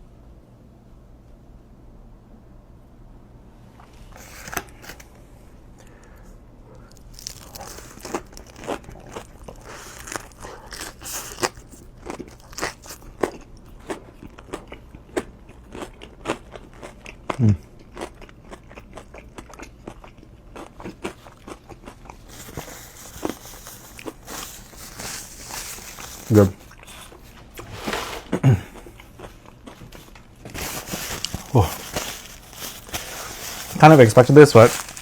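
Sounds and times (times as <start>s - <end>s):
crisp chewing crunches: 6.8s - 27.6s, 28.6s - 35.0s.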